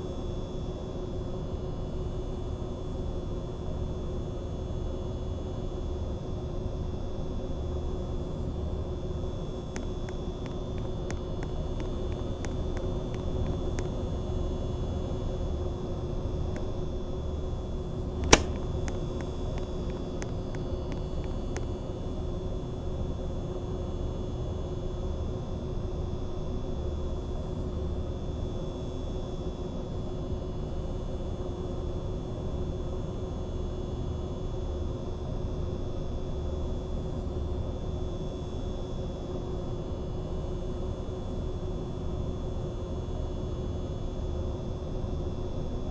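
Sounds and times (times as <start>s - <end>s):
sharp click: 18.2s - 21.0s
ceiling fan running: 18.2s - 21.6s.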